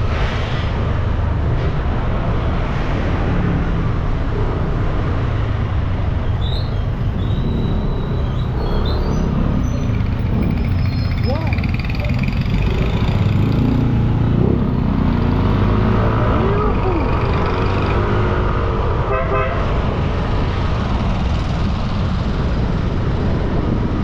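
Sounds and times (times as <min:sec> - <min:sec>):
motorbike engine rumbling: 0:06.1 - 0:14.6
vehicle horns honking: 0:19.1 - 0:19.7.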